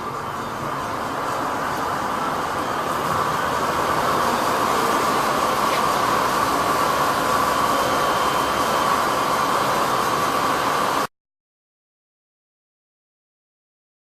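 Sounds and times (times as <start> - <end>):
mechanical hum and hiss: 0.0 - 11.1.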